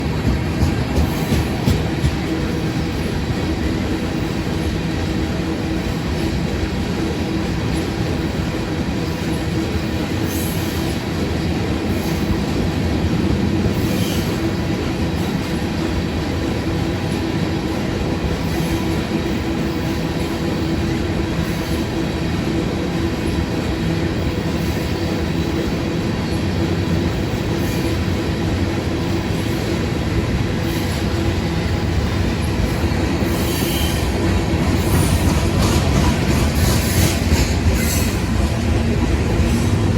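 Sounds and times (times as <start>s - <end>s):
train wheels rumbling on rail: 0.0s - 39.9s
wheel squeal: 33.2s - 34.1s.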